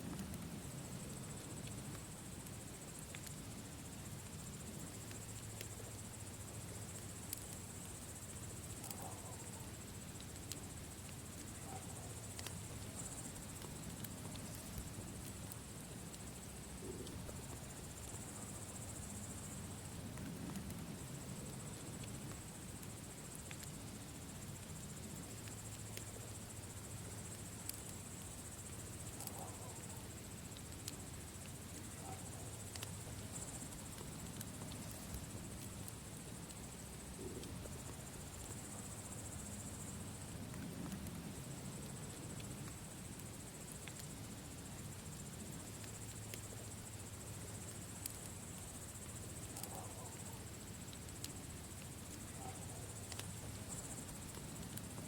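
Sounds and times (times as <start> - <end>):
campfire crackling and popping: 0.0 - 55.0
insects chirring: 0.0 - 55.0.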